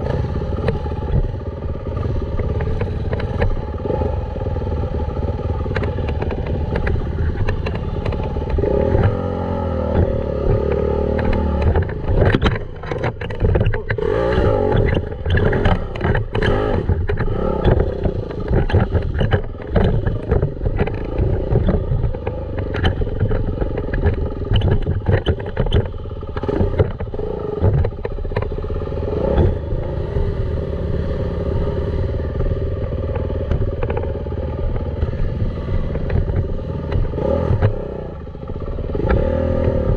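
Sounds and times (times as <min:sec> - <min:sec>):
dirt bike engine revving: 0:00.0 - 0:39.9
bike clattering over rough ground: 0:09.9 - 0:29.5.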